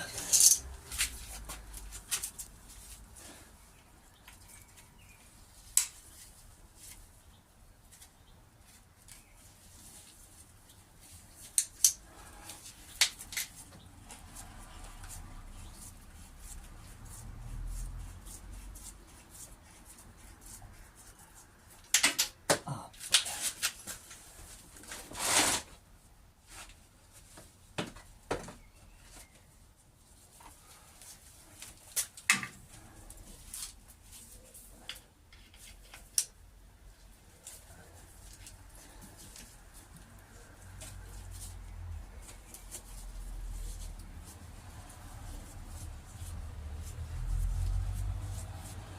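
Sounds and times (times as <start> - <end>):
metal scrape: 25.0 - 25.8.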